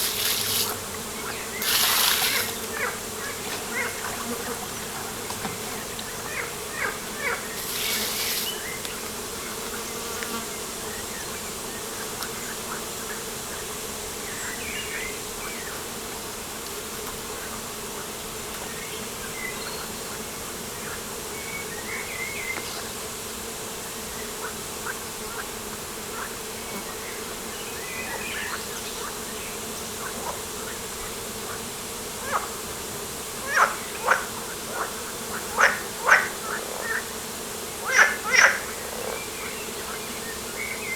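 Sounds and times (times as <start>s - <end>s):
insects buzzing: 0.0s - 40.9s.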